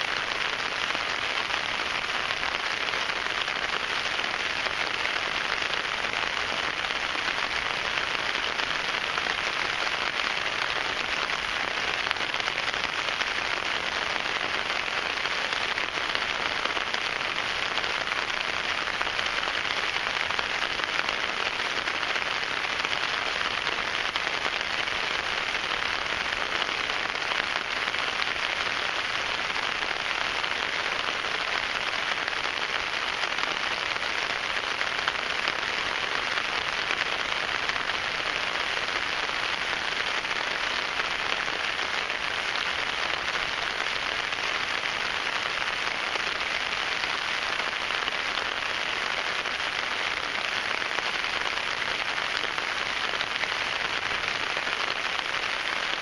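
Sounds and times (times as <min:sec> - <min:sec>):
rain pattering on tent fabric: 0:00.0 - 0:56.0.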